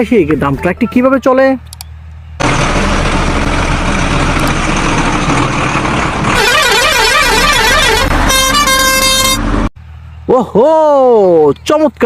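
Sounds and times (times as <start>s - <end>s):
truck engine running: 1.6s - 10.3s
warbling electronic horn: 6.4s - 9.5s.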